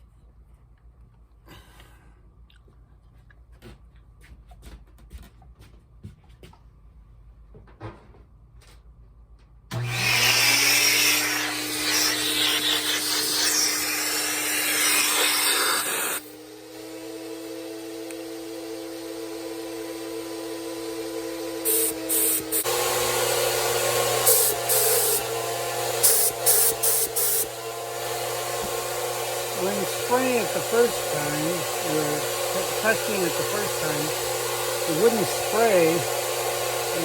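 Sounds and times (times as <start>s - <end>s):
turbine whine and hum: 9.7s - 37.0s
spray gun hissing: 11.3s - 16.3s, 24.2s - 37.0s.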